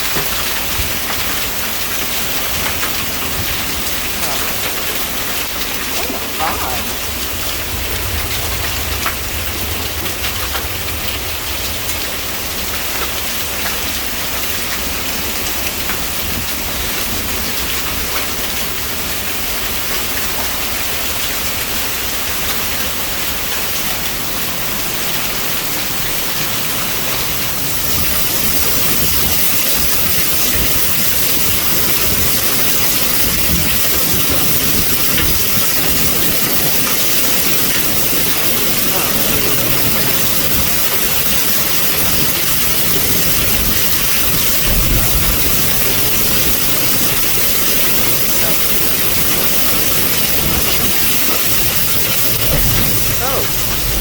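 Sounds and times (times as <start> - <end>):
heavy rain and hail pouring: 0.0 - 54.0.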